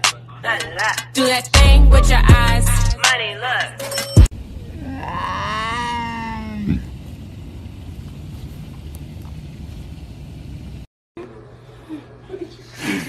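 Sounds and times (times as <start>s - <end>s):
low steady rumble: 4.4s - 10.9s.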